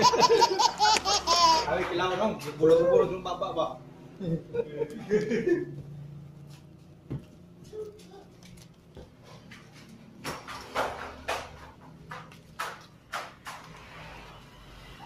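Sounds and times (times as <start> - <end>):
vinyl and paper rustling: 6.4 - 10.7.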